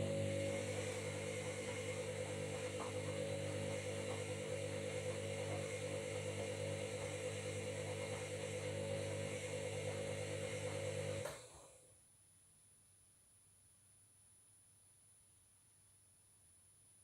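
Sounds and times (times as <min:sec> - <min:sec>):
washing machine running: 0:00.0 - 0:11.6.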